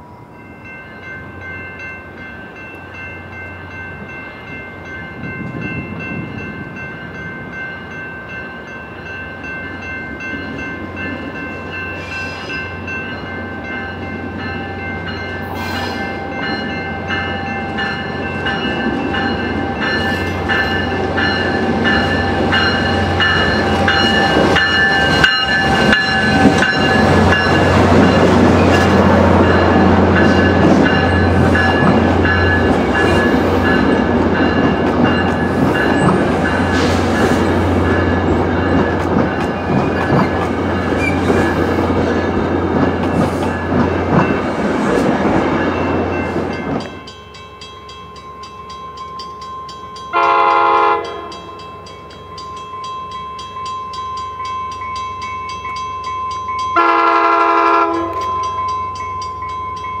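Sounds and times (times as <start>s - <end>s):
train rumbling past: 0.0s - 60.0s
distant train horn blasts: 50.1s - 51.5s, 56.8s - 58.3s.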